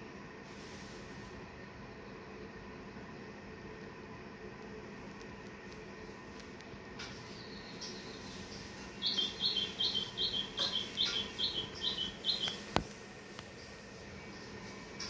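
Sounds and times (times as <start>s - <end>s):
bird calling in high notes: 8.9s - 12.8s.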